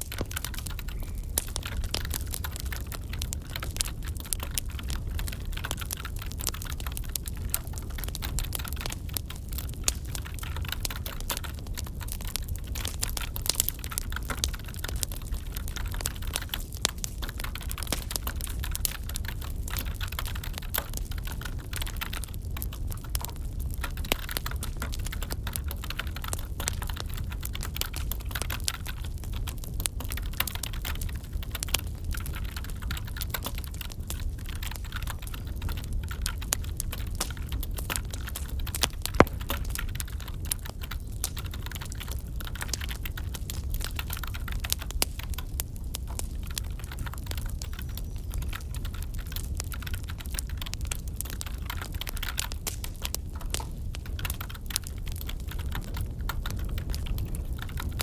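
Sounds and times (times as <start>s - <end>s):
wood fire crackling: 0.0s - 58.0s
sharp pop: 39.2s - 39.8s.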